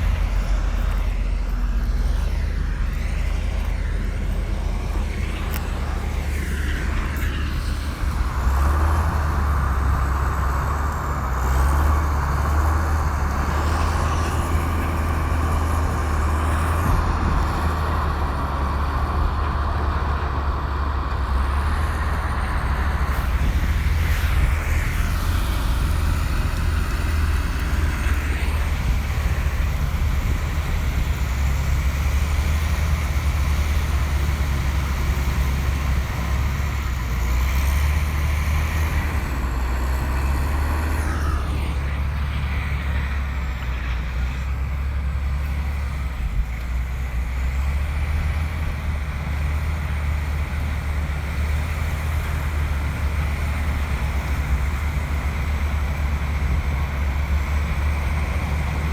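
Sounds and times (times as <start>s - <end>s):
high-pitched whine: 0.0s - 20.2s
bulldozer diesel engine droning: 0.0s - 58.9s.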